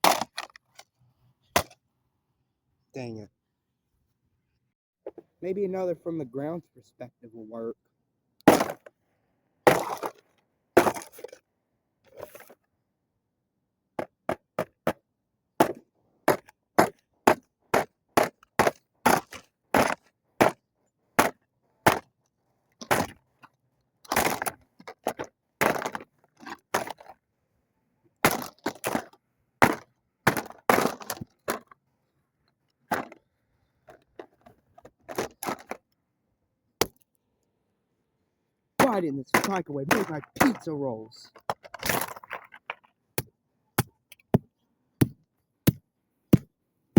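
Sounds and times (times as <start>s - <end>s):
plastic toy being smashed: 0.0s - 0.8s, 8.4s - 8.9s, 28.2s - 31.7s, 38.8s - 40.7s.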